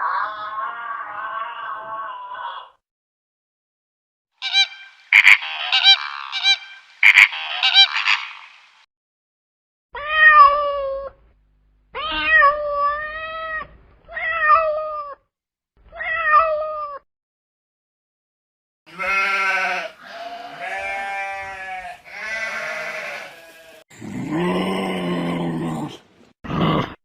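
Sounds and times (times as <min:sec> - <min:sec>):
high-pitched calls: 0:04.4 - 0:08.8
cat meowing: 0:10.0 - 0:11.2, 0:12.0 - 0:15.2, 0:15.9 - 0:17.0.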